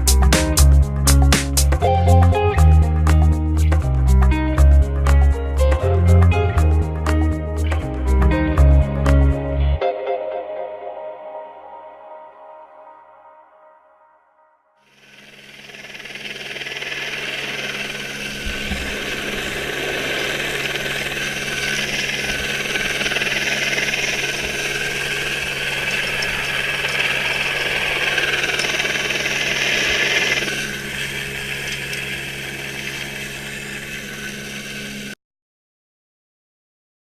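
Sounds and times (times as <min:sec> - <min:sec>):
helicopter engine hum: 0:14.9 - 0:35.2
hissing whine: 0:14.9 - 0:35.2.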